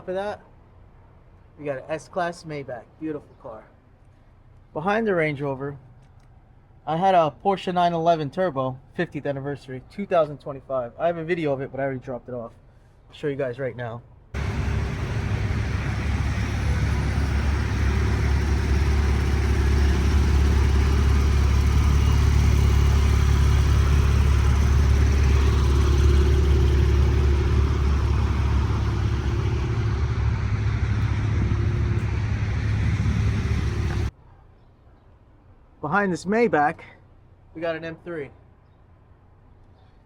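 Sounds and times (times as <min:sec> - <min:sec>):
road and wind noise: 0:00.0 - 0:04.8, 0:14.1 - 0:34.2
car engine drone: 0:14.4 - 0:34.1.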